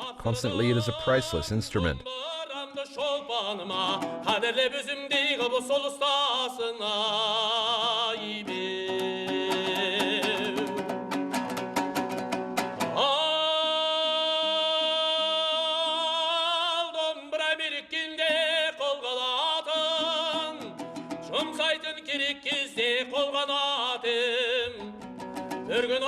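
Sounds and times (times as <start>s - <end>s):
person singing with vibrato: 0.0s - 10.9s, 13.0s - 25.0s
plucked lute strings: 3.7s - 5.5s, 8.4s - 13.1s, 19.9s - 23.2s, 24.1s - 26.0s.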